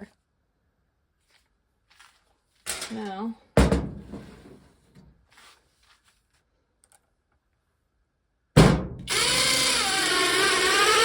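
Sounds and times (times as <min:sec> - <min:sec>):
impact driver running: 0:09.1 - 0:11.0.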